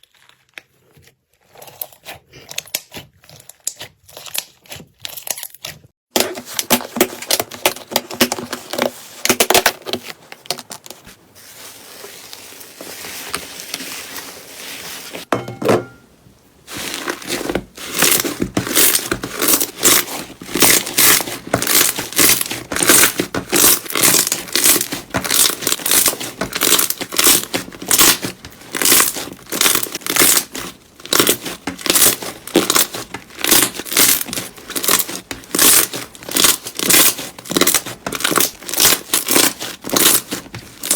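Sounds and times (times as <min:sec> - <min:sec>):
slime crackling and popping: 0:16.8 - 0:40.9.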